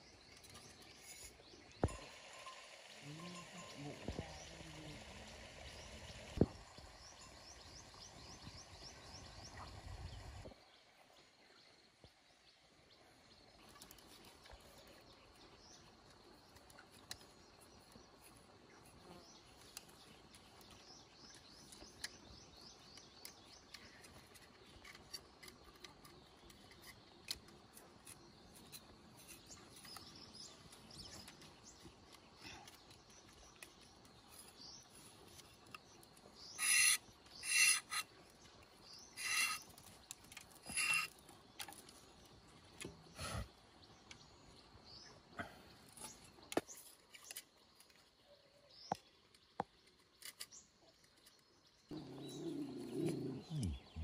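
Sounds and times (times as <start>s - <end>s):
loud harsh bird calls: 36.4s - 38.1s, 39.0s - 39.8s
faint high bird chirps: 38.9s - 40.0s.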